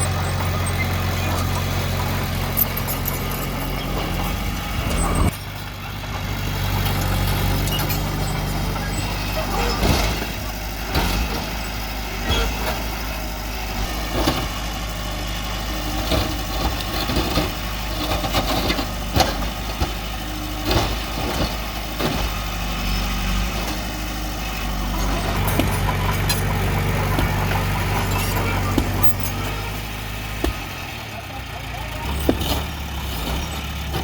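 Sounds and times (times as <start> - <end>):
diesel engine running: 0.0 - 34.0
sharp metallic clanks: 0.1 - 5.6, 24.6 - 30.7.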